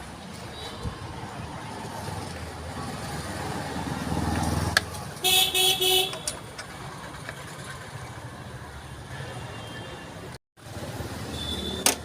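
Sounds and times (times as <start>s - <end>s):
low traffic rumble: 0.0s - 12.0s
vehicle horn toots: 5.2s - 6.3s.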